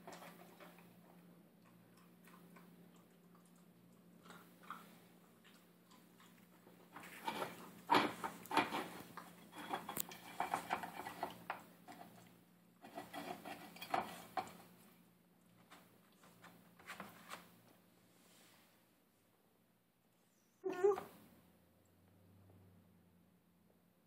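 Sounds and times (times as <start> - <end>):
puppy crunching dry food: 0.0 - 14.8.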